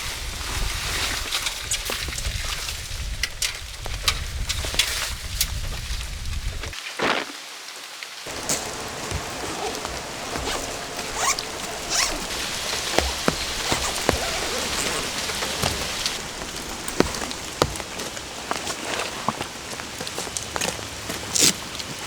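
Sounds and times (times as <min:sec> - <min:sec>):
rain falling steadily: 0:07.4 - 0:22.0.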